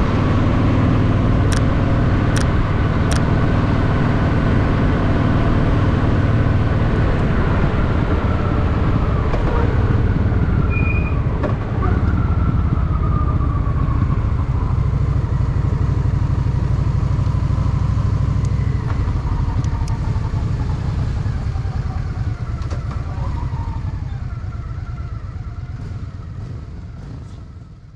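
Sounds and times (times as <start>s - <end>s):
motorcycle engine running: 23.3s - 27.9s.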